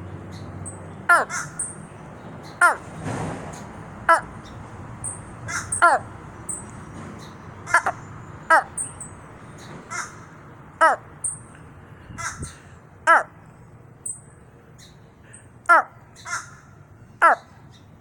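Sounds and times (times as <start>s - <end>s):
raven cawing: 1.1s - 1.7s, 2.6s - 2.8s, 4.1s - 4.4s, 5.4s - 6.2s, 7.6s - 8.8s, 9.9s - 11.1s, 12.0s - 13.4s, 15.7s - 17.5s.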